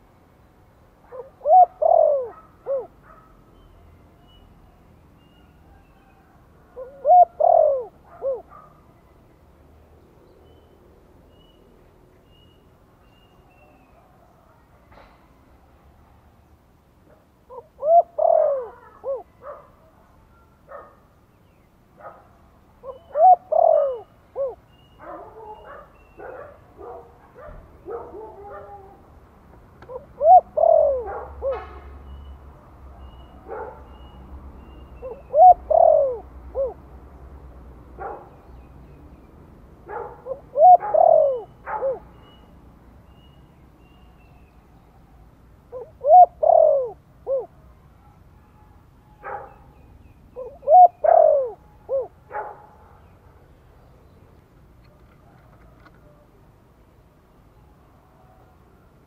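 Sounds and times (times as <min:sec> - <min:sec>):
dove cooing: 0:01.0 - 0:03.2, 0:06.1 - 0:08.7, 0:17.5 - 0:19.7, 0:22.8 - 0:29.0, 0:29.8 - 0:31.9, 0:35.0 - 0:36.8, 0:39.9 - 0:42.1, 0:45.7 - 0:47.6, 0:50.3 - 0:52.5.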